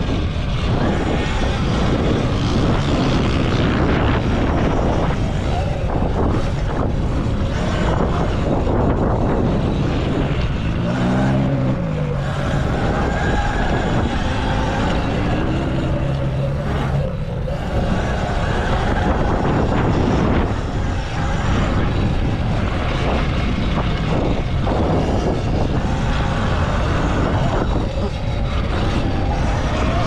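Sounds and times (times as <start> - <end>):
rush of noise: 0.0 - 30.0.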